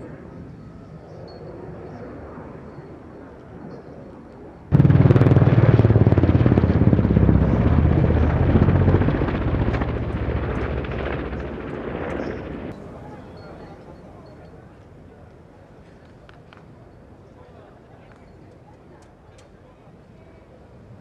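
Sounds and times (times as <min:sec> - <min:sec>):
helicopter rotor beat: 0:04.7 - 0:12.8.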